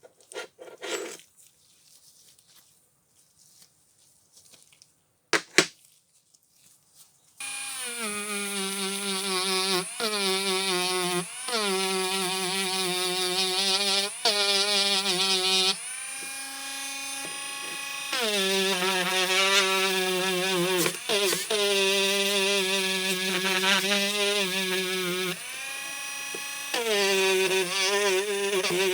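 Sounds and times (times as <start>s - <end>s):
power tool whining: 7.4s - 28.9s.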